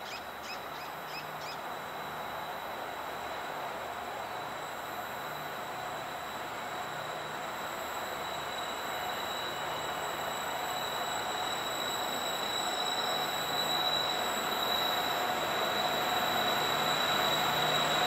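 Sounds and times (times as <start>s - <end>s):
freight train approaching: 0.0s - 18.0s
high-pitched wheel squeal: 5.4s - 18.0s.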